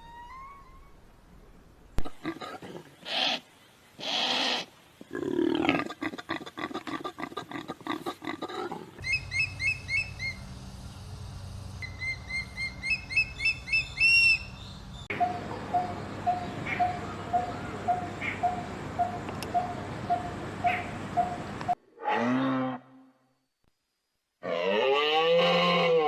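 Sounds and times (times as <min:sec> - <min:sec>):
harsh rasping animal calls: 0:02.0 - 0:09.8, 0:24.4 - 0:26.0
bird chirping: 0:09.0 - 0:11.0, 0:11.8 - 0:21.8.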